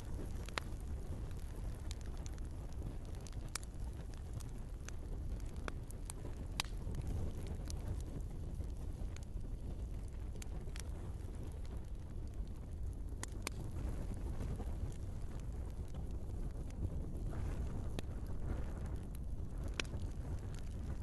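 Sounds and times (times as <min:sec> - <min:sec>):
flames rumbling: 0:00.0 - 0:21.0
logs crackling and popping: 0:00.0 - 0:21.0.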